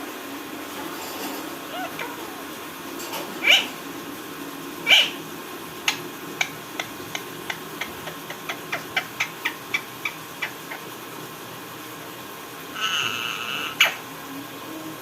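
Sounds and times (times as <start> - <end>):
parrot chirping: 1.6 - 2.5, 3.4 - 3.8, 4.8 - 5.2, 5.8 - 10.9, 12.7 - 14.0
parrot calling: 1.6 - 2.7, 3.4 - 3.8, 4.8 - 5.2, 5.8 - 10.9, 12.7 - 14.1.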